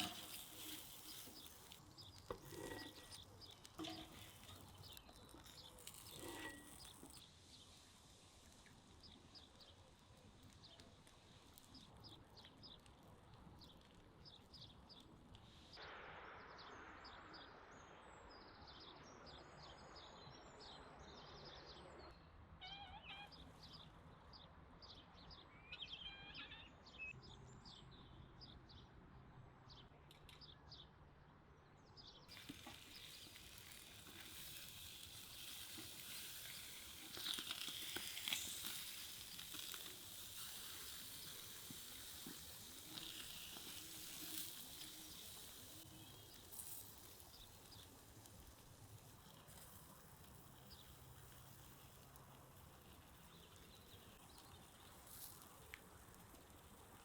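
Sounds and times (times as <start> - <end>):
small birds chirping: 0.0 - 15.8, 22.7 - 28.8, 31.9 - 57.0
steady hiss with faint crackles: 0.0 - 19.2, 32.3 - 57.0.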